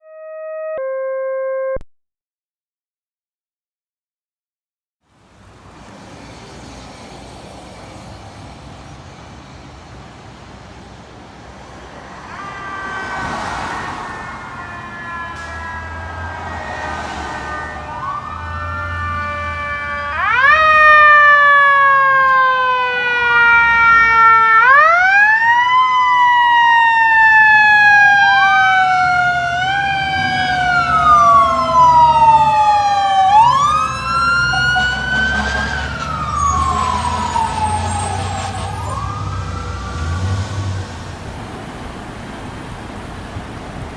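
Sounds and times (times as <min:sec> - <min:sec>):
fire engine sirens: 0:00.0 - 0:01.8, 0:06.4 - 0:43.9
engine rumble: 0:27.0 - 0:43.9.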